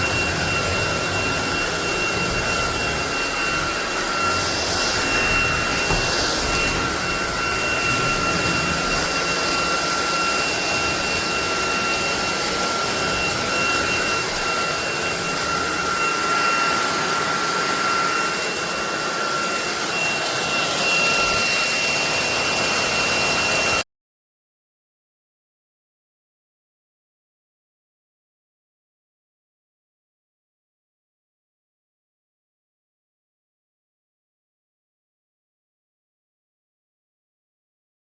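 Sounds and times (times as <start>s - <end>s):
stick vacuum running: 0.0s - 23.8s.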